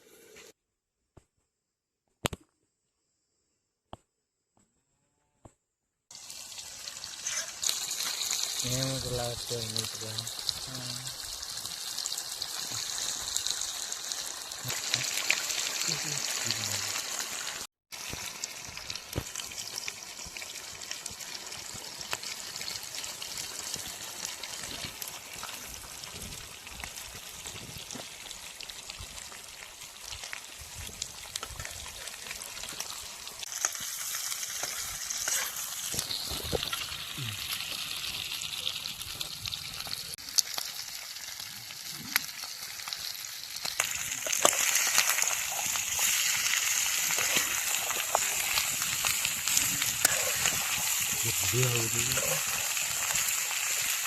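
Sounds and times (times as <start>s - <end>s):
curry sizzling in a pan: 6.1s - 54.0s
stirring clicks and scrapes: 43.7s - 54.0s.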